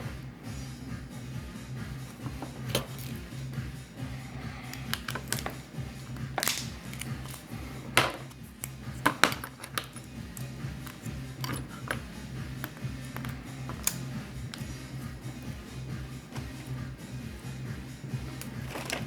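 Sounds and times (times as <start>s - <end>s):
background music with low beat: 0.0s - 19.0s
small tools clicking and tapping: 2.0s - 3.2s, 4.6s - 14.7s, 18.3s - 19.0s.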